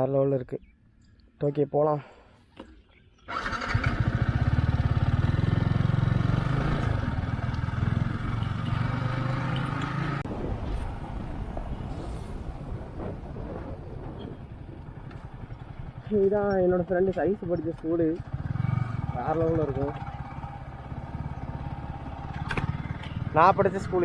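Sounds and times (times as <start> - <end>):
motorcycle engine running: 3.3 - 10.2, 14.1 - 24.0.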